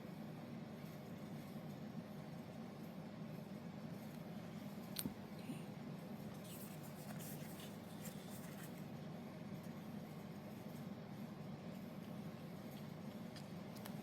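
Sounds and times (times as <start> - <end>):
low steady hum: 0.0 - 14.0
paper rustling and scraping: 6.4 - 8.9.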